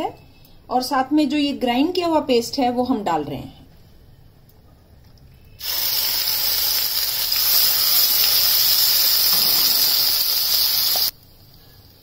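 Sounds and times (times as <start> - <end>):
onion paste sizzling in hot oil: 5.6 - 12.0.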